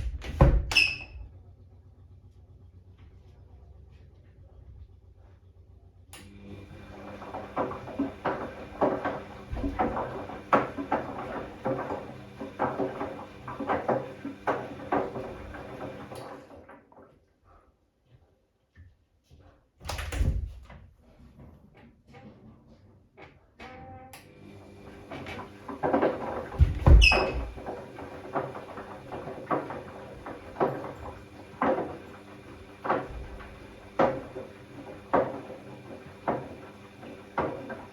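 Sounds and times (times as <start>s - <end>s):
washing machine motor humming: 6.2s - 16.7s, 24.1s - 37.9s
laundry clunking in drum: 6.9s - 16.4s, 24.9s - 37.9s.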